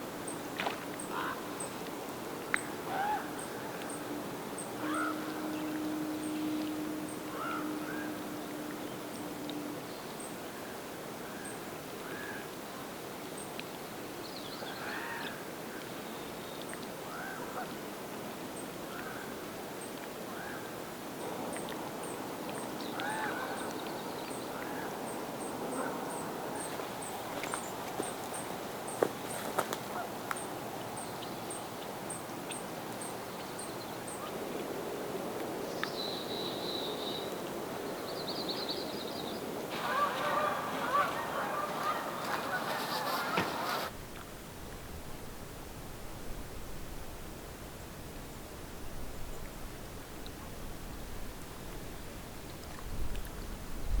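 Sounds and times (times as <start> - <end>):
faint steady hum: 0.0 - 14.2
birds screaming calls: 39.7 - 43.9.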